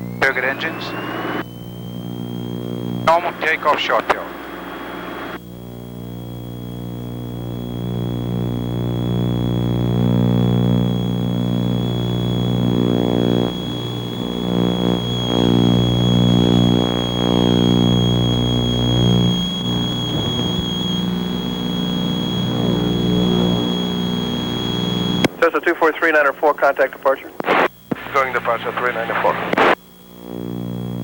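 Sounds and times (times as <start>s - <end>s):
propeller plane engines droning: 0.0s - 5.4s, 7.8s - 27.2s.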